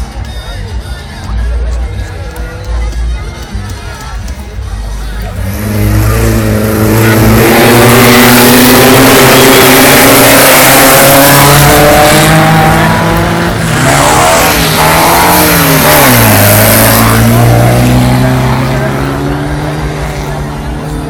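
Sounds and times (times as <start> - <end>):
race car engines at high revs: 5.2 - 21.0.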